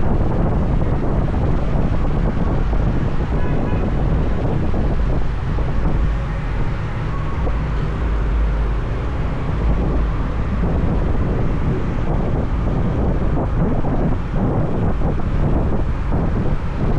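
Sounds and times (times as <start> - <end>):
motorbike engine rumble: 0.0 - 16.9
wind buffeting microphone: 0.0 - 16.9.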